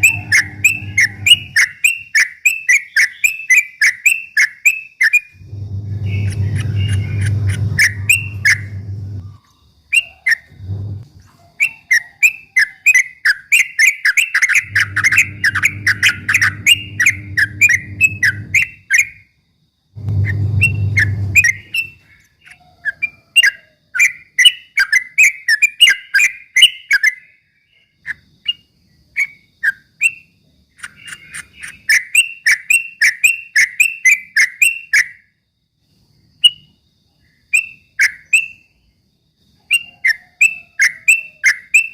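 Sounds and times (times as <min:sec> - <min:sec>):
low background hum: 0:00.0 - 0:01.8, 0:05.4 - 0:09.8, 0:10.4 - 0:11.4, 0:14.5 - 0:18.9, 0:19.9 - 0:22.3
bulbul singing chirpy whistles: 0:00.0 - 0:10.7, 0:11.6 - 0:19.4, 0:20.2 - 0:35.3, 0:36.2 - 0:39.0, 0:39.6 - 0:41.9.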